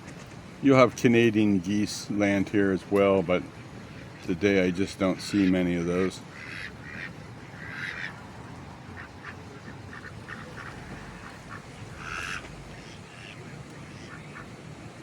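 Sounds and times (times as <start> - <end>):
ducks quacking: 3.9 - 14.7.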